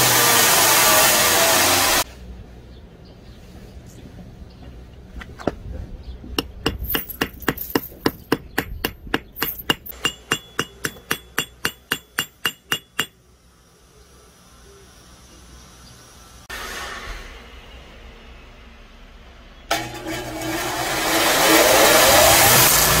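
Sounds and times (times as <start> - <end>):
hammer tapping metal pins: 6.4 - 13.2.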